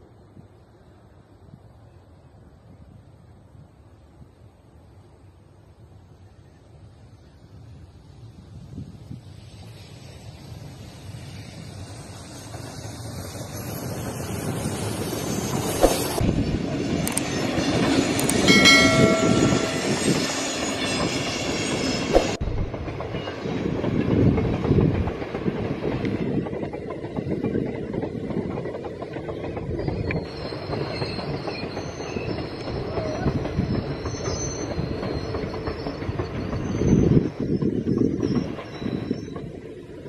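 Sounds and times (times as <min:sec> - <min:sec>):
wheels rattling on track: 0:09.2 - 0:40.0
high steady wheel squeal: 0:09.3 - 0:16.2, 0:17.2 - 0:22.4, 0:29.2 - 0:40.0.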